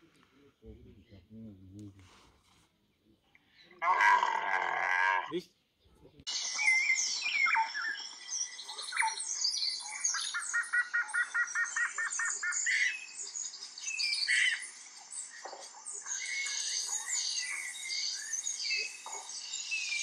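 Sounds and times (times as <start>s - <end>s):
birds chirping and whistling: 6.3s - 20.0s.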